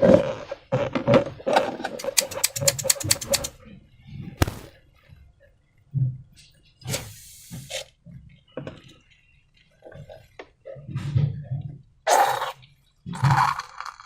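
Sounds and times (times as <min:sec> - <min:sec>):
soft low thuds: 0:04.4 - 0:04.7.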